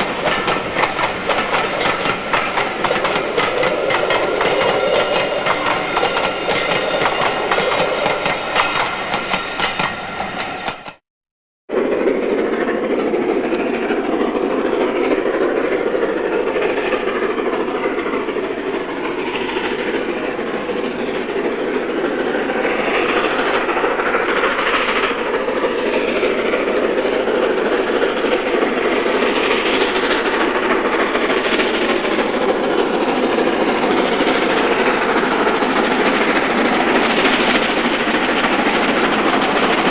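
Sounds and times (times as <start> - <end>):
train wheels clattering on rails: 0.0 - 11.0, 11.7 - 39.9
high ringing tones: 4.2 - 10.9.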